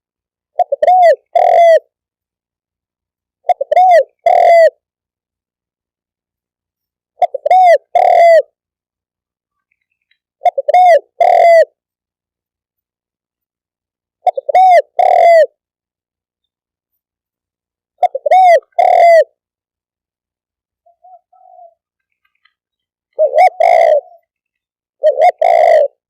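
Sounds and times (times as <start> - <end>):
dove cooing: 0.5 - 1.9, 3.4 - 4.8, 7.2 - 8.6, 10.4 - 11.8, 14.2 - 15.6, 18.0 - 19.4, 20.8 - 22.5, 23.1 - 24.4, 25.0 - 26.0.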